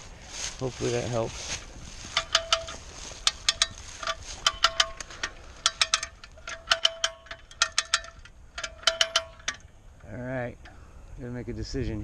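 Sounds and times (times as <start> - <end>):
winch ratchet clicking: 2.1 - 10.1.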